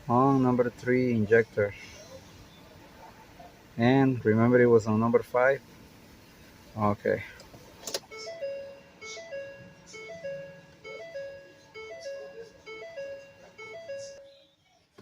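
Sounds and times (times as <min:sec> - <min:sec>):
electronic chime tune: 0:08.1 - 0:14.4.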